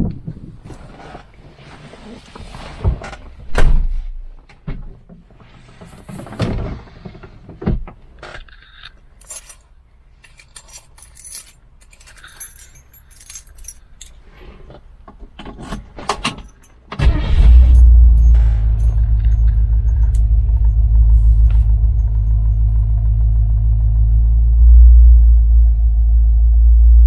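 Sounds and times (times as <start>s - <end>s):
keys jangling: 9.2s - 14.2s, 15.6s - 16.8s, 17.5s - 22.9s
car engine starting and rumbling: 15.8s - 27.0s.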